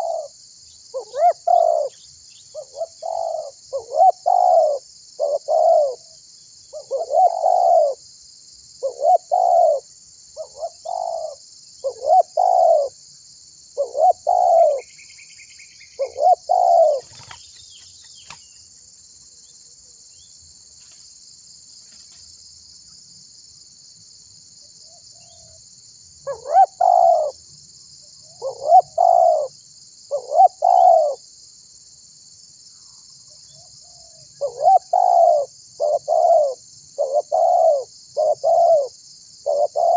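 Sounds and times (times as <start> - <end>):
dove cooing: 0.0 - 0.3, 0.9 - 6.1, 6.7 - 8.0, 8.8 - 13.0, 13.8 - 14.9, 16.0 - 17.5, 26.2 - 27.4, 28.3 - 29.5, 30.1 - 31.2, 34.4 - 39.9.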